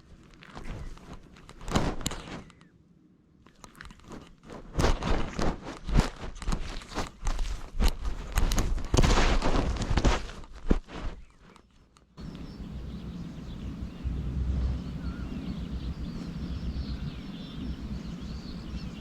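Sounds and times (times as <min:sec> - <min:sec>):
cat crunching and rustling on ground: 0:00.0 - 0:02.7, 0:03.4 - 0:12.8.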